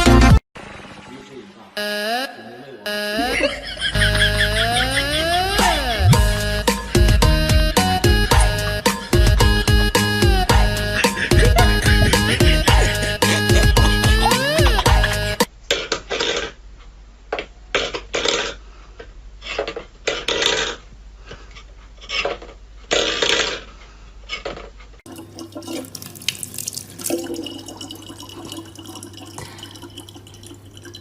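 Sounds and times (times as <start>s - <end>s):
low hum: 3.2s - 15.4s
water splashing at a sink: 25.1s - 31.0s.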